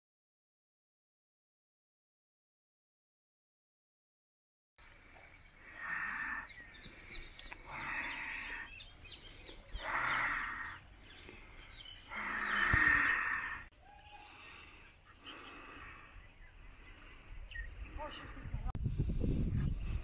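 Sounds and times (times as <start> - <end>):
birds chirping: 4.8 - 18.7.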